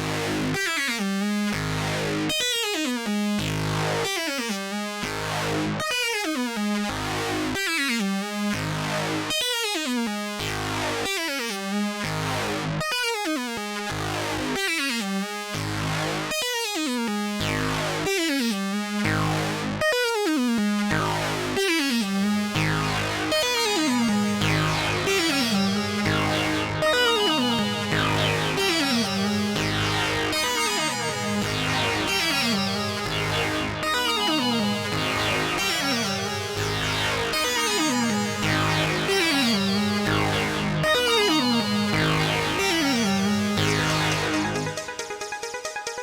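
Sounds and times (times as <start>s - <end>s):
synthesizer sequence with falling sweep: 22.4s - 46.0s.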